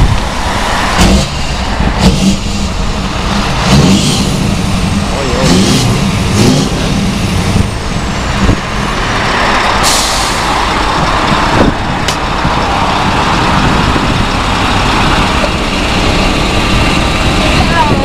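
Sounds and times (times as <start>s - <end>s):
truck engine running: 0.0s - 18.0s
air hiss: 9.8s - 10.5s.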